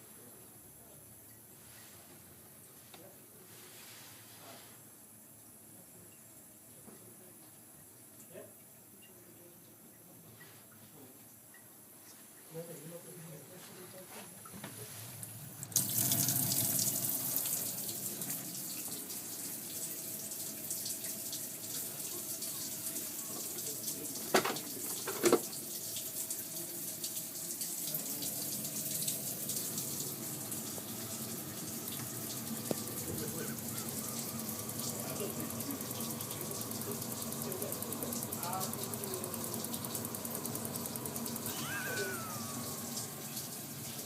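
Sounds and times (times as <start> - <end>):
water running from a tap: 14.4 - 44.0.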